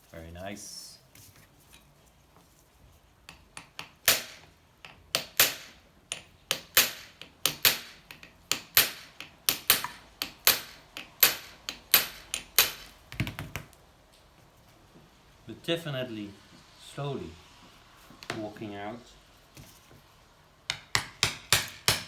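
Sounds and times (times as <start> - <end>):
hammer striking metal: 3.6 - 13.0, 20.7 - 22.0.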